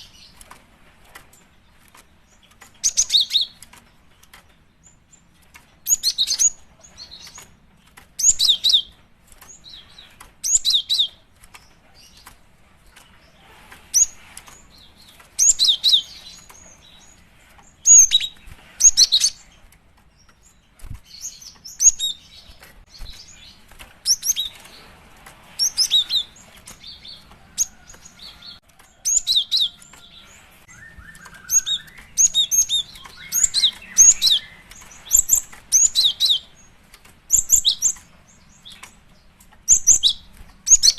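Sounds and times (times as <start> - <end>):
bird chirping: 1.2 - 40.9.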